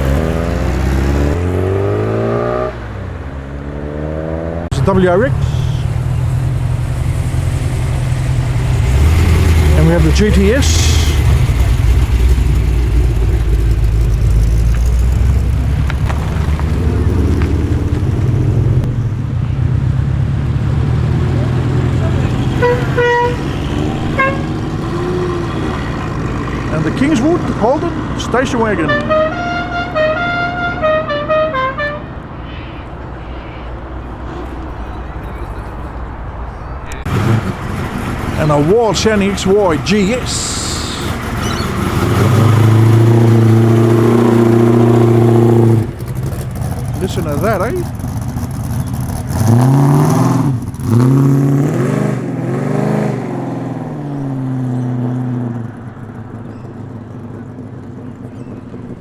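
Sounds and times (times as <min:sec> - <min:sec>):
car engines rumbling: 0:00.0 - 0:59.0
musical car horn tune: 0:22.4 - 0:25.9, 0:28.7 - 0:36.1.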